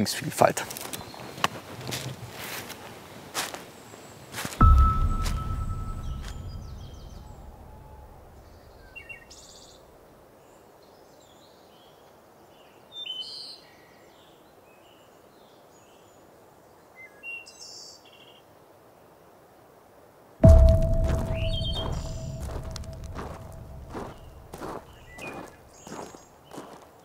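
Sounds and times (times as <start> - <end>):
low rumble: 4.6 - 9.0, 20.4 - 25.0.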